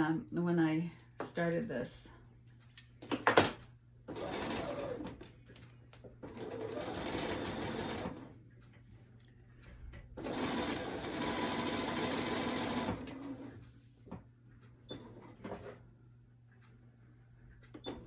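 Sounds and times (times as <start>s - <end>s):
sewing machine stitching: 4.1s - 5.2s, 6.2s - 8.3s, 10.2s - 13.6s.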